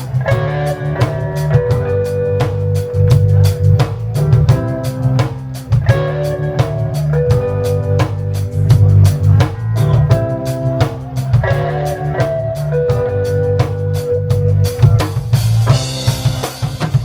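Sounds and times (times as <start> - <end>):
drum kit steady beat: 0.0 - 17.0
guitar or keyboard chords: 0.0 - 17.0
heavy bass line: 0.0 - 17.0
live reggae band playing: 0.0 - 17.0.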